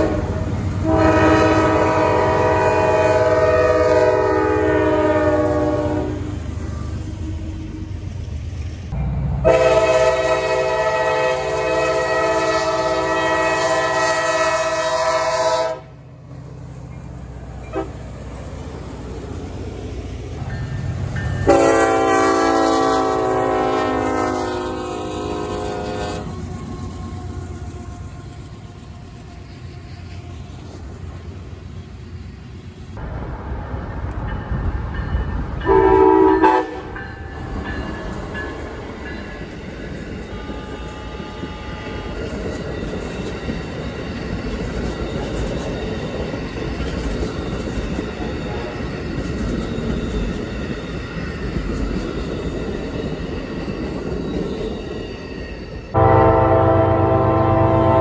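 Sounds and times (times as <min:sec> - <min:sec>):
diesel locomotive horn: 0:00.0 - 0:08.0, 0:09.4 - 0:16.1, 0:17.6 - 0:18.1, 0:21.4 - 0:29.2, 0:35.6 - 0:37.1, 0:40.3 - 0:42.3, 0:55.9 - 0:58.0
train wheels rumbling on rails: 0:00.0 - 0:58.0.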